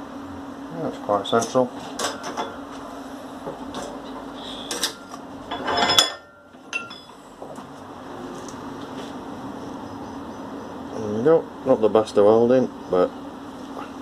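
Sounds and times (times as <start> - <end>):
background hum: 0.0 - 14.0
steel parts clinking: 4.6 - 7.2.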